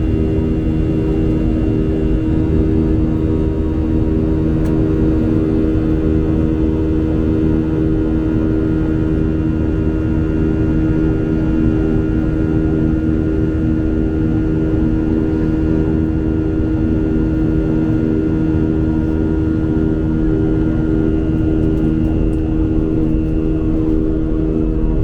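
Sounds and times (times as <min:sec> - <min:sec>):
airplane cabin engine drone: 0:00.0 - 0:25.0.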